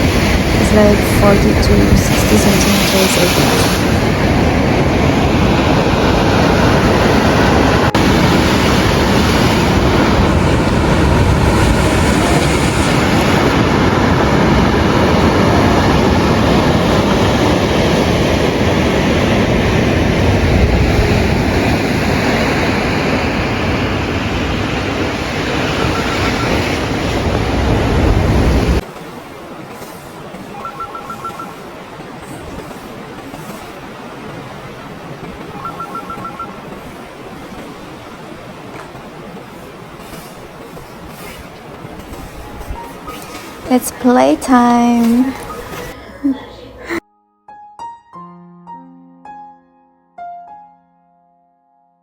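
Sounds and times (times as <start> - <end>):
wind blowing across microphone: 0.0 - 46.0.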